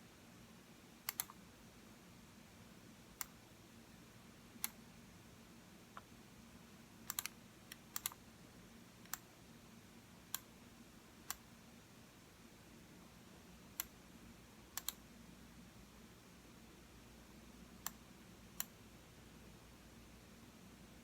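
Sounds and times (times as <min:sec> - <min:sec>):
faint low room hum: 0:00.0 - 0:21.0
computer mouse button clicking: 0:07.1 - 0:08.2.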